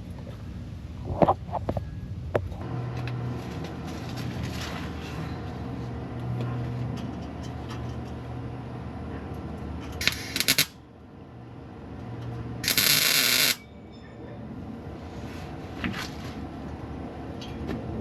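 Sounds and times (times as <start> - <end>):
low electrical hum: 0.0 - 18.0
welder arc crackling: 10.0 - 10.8, 12.6 - 13.6.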